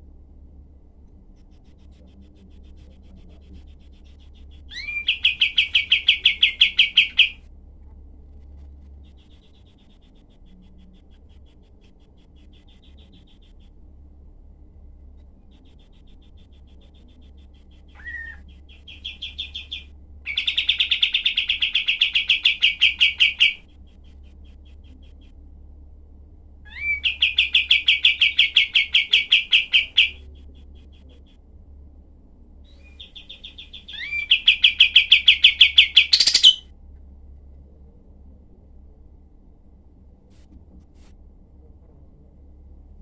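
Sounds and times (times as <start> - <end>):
steady low hum: 0.0 - 43.0
bird singing rapid harsh notes: 3.6 - 7.4, 15.5 - 25.2, 26.7 - 31.0, 32.7 - 36.6.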